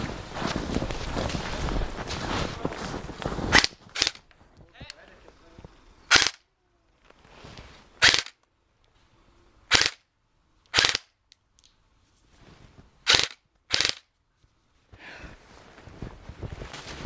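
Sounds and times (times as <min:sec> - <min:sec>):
airsoft rifle bursts: 0:03.5 - 0:04.3, 0:06.1 - 0:06.4, 0:08.0 - 0:08.4, 0:09.7 - 0:10.0, 0:10.7 - 0:11.1, 0:13.1 - 0:14.1.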